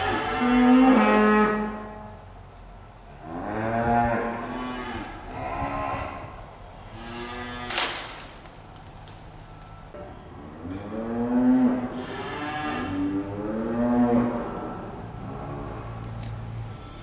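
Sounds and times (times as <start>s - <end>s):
calf mooing: 0.0s - 2.0s, 3.2s - 7.7s, 10.7s - 15.8s.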